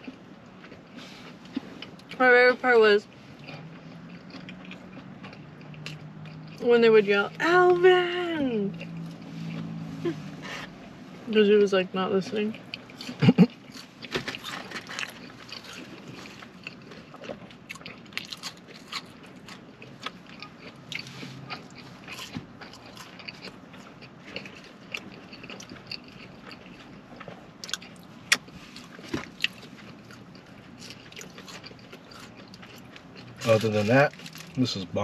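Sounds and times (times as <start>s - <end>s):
chewing and biting food: 0.0s - 2.2s, 3.0s - 6.6s, 8.7s - 10.9s, 12.5s - 34.8s.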